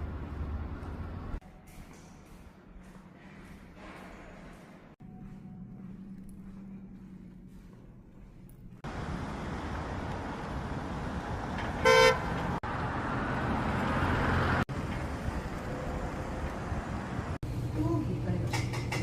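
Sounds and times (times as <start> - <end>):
street traffic: 0.0 - 2.9, 6.4 - 19.0
car horn beep: 11.8 - 12.3.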